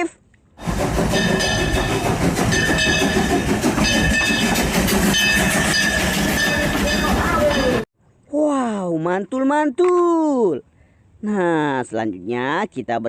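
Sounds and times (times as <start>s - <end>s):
train clickety-clack on rails: 0.6s - 7.9s.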